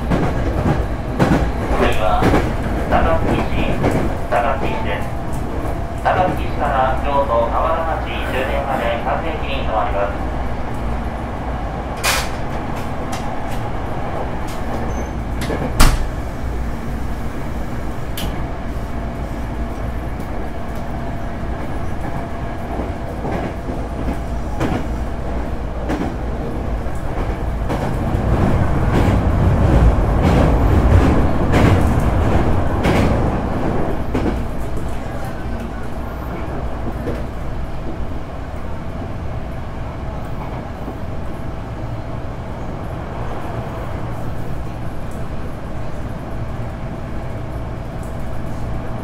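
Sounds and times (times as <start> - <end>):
train rumbling on rails: 0.0 - 49.0.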